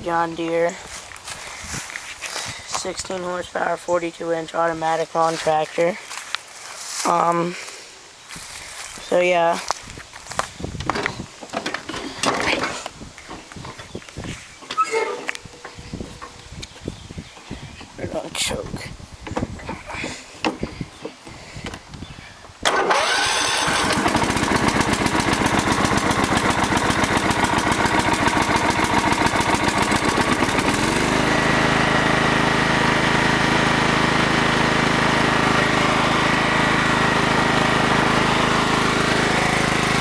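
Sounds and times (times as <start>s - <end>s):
lawn tractor engine running: 22.6s - 40.0s.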